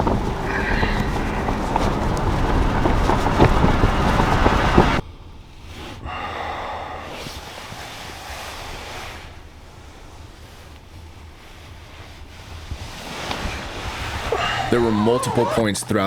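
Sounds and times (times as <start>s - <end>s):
steady rush of wind: 0.0s - 14.9s
strong wind buffeting microphone: 0.0s - 15.6s.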